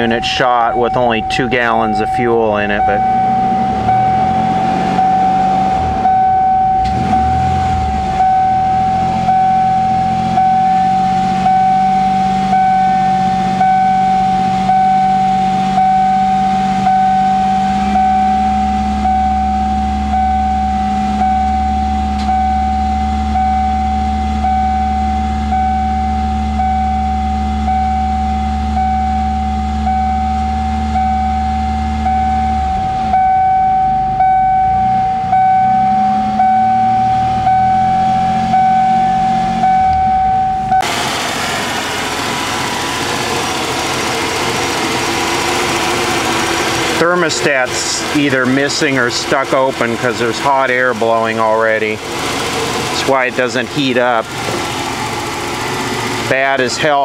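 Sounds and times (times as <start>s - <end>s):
dashboard warning chime dinging: 0.0s - 41.0s, 45.2s - 52.0s, 52.7s - 57.0s
car engine fast idle: 39.9s - 57.0s.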